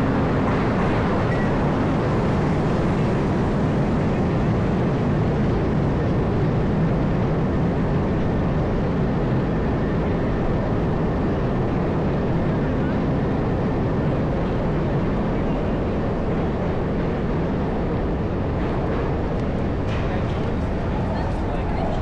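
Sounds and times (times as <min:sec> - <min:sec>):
traffic rumble: 0:10.2 - 0:22.0.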